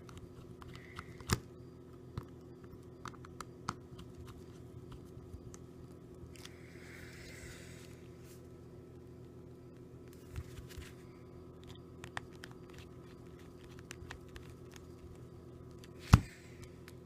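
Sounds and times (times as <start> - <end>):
steady low hum: 0.0 - 17.0
fingertips tapping touchscreen: 12.0 - 15.2.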